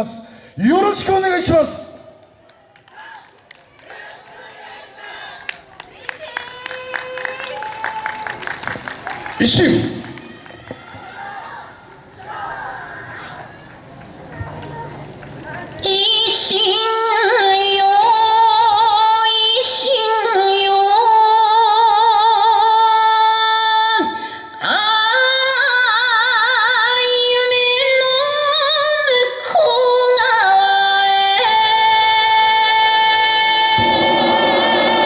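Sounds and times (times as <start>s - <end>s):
woman singing with vibrato: 15.8s - 35.0s.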